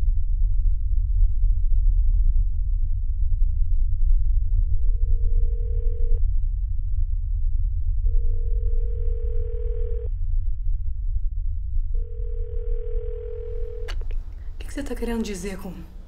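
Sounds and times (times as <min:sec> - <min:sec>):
steady low rumble: 0:00.0 - 0:16.0
phone ringing: 0:05.2 - 0:06.2, 0:08.2 - 0:10.1, 0:12.0 - 0:14.0.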